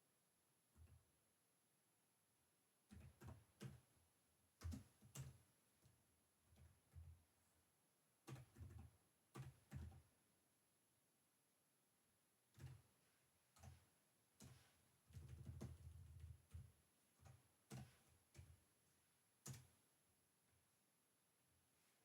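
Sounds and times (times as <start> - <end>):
faint keyboard typing: 0.7 - 1.2, 2.8 - 7.3, 8.2 - 10.2, 12.4 - 20.6.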